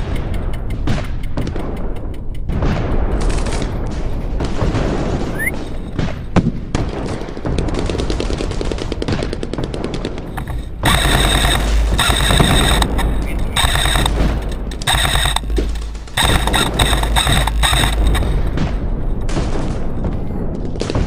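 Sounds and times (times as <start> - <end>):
airsoft guns firing bursts: 6.8 - 19.9
pulsing pitched tone: 10.4 - 18.6.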